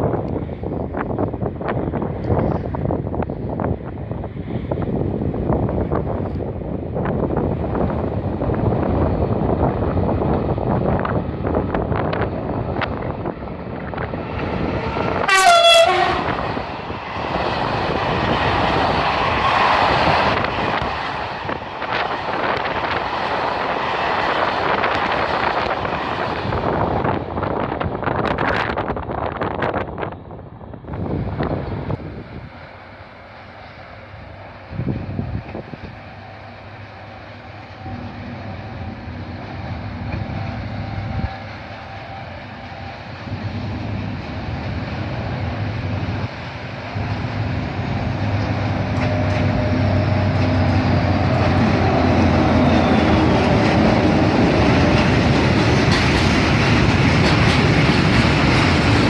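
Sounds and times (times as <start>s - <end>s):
train rolling past: 0.0s - 59.0s
train horn blast: 15.2s - 16.5s.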